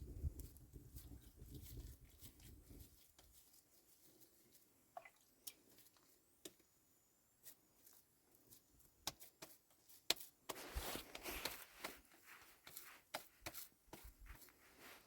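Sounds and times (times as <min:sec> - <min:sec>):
rustling handling noise: 0:07.4 - 0:15.0.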